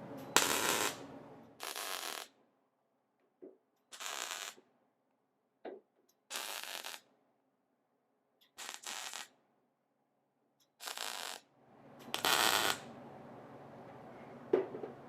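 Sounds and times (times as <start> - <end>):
welder crackling bursts: 0.4 - 2.3, 3.9 - 4.6, 6.3 - 7.1, 8.6 - 9.3, 10.8 - 11.4, 12.1 - 12.9.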